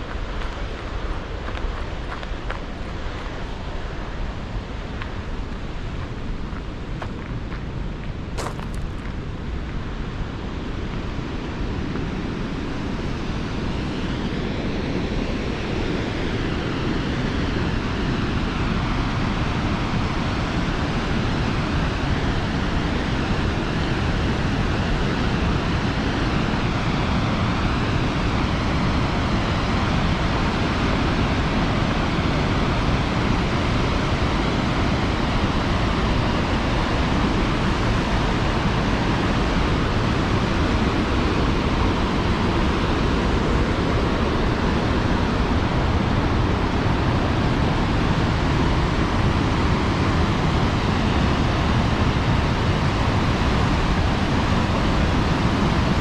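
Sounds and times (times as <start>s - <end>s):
waterfall roaring: 12.6s - 56.0s.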